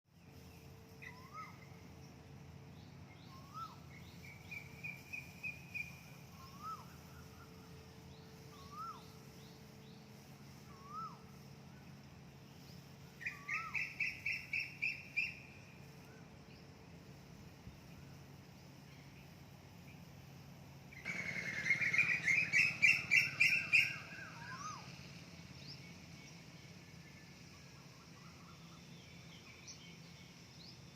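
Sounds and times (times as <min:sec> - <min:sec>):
steady low hum: 0:00.1 - 0:30.9
bird whistling up and down: 0:01.0 - 0:01.8, 0:03.2 - 0:07.5, 0:08.5 - 0:09.1, 0:10.7 - 0:11.3, 0:13.2 - 0:15.5, 0:21.0 - 0:25.0
bird rattling trills: 0:21.0 - 0:25.1.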